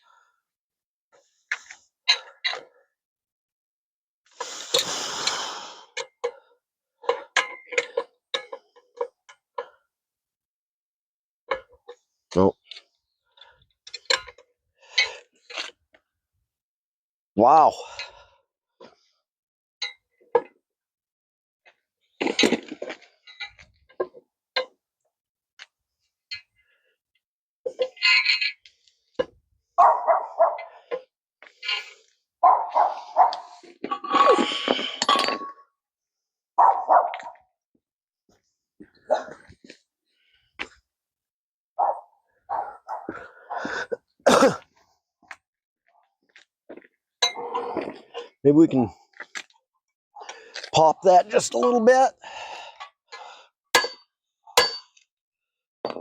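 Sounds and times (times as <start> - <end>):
hand tools clinking on metal: 53.8 - 54.0, 54.6 - 55.0.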